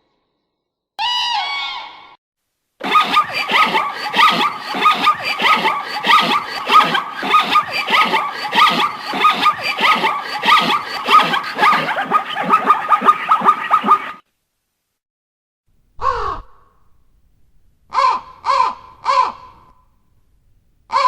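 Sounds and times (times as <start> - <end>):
rapid squeaky animal calls: 2.8 - 14.2.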